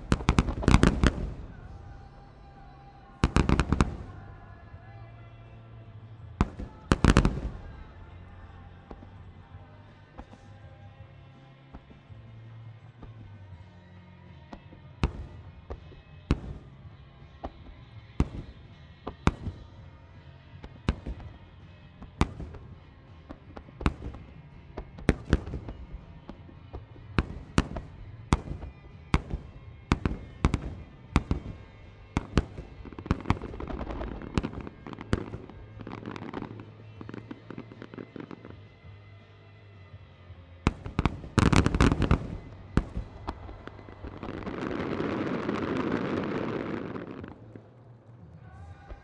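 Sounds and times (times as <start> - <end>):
firework shells booming: 0.0 - 5.0, 6.4 - 9.2, 27.1 - 38.6, 40.7 - 47.5
firework crackling: 0.0 - 9.6, 22.2 - 38.8, 40.7 - 48.3.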